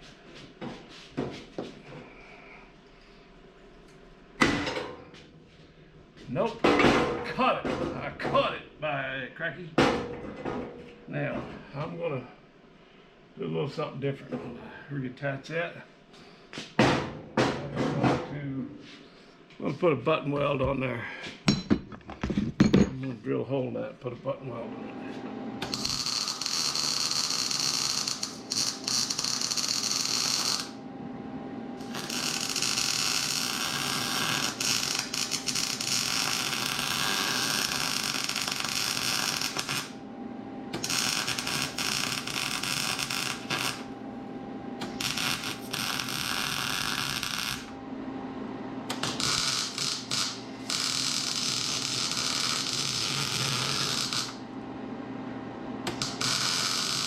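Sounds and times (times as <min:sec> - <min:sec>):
welding arc crackling: 0:25.6 - 0:30.8, 0:31.8 - 0:40.0, 0:40.7 - 0:44.0, 0:44.8 - 0:47.8, 0:48.9 - 0:54.4, 0:55.9 - 0:57.0.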